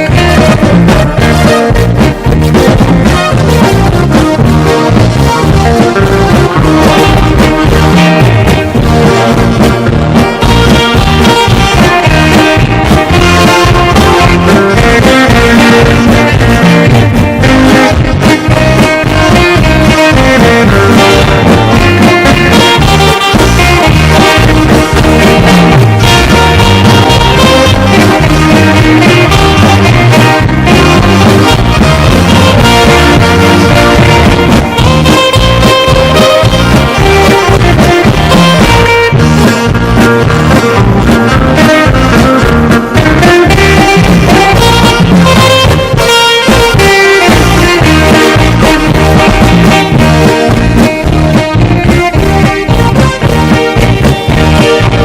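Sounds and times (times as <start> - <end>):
drum kit: 0.0 - 55.0
electronic keyboard: 0.0 - 55.0
guitar: 0.0 - 55.0
saxophone melody: 0.0 - 55.0.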